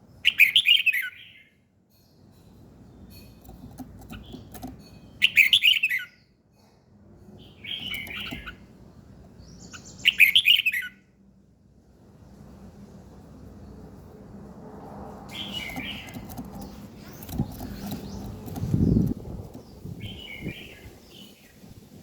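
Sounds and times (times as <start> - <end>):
songbird warbling: 7.6 - 8.6.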